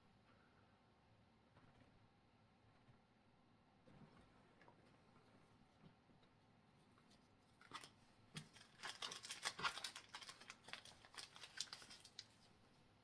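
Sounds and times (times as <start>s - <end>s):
cards and foil packs crinkling: 7.6s - 12.5s.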